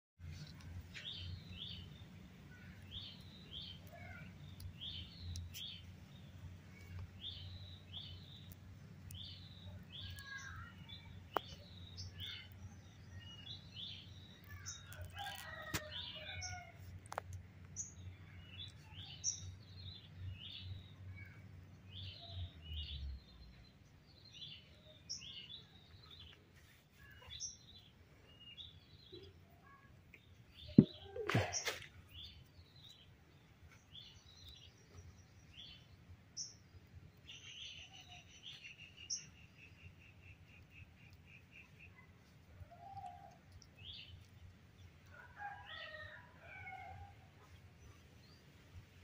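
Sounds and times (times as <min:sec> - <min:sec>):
songbird chirping: 0:00.2 - 0:49.0.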